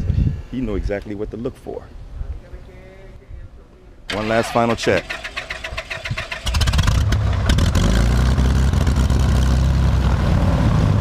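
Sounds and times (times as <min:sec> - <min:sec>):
aircraft piston engine starting: 0:04.1 - 0:08.0.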